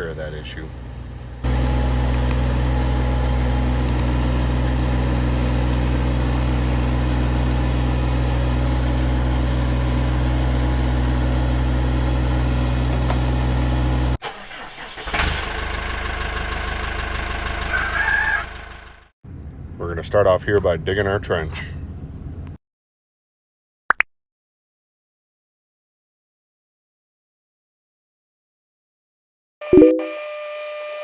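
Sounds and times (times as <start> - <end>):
tractor diesel engine running: 0.0 - 22.3.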